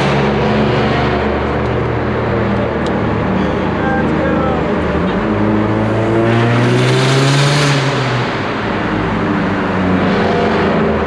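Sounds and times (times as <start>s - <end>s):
car exhaust revving: 0.0s - 11.0s.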